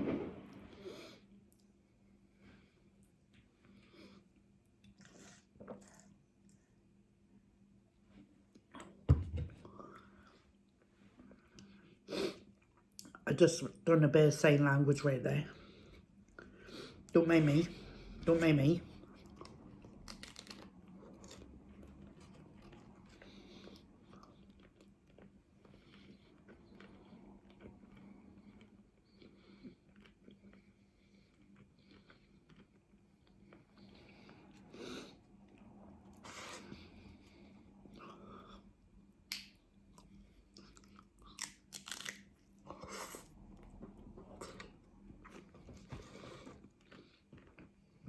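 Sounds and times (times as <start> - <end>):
faint hum: 0.0 - 48.0
chewing crunchy taco shell: 19.1 - 38.2, 39.3 - 48.0.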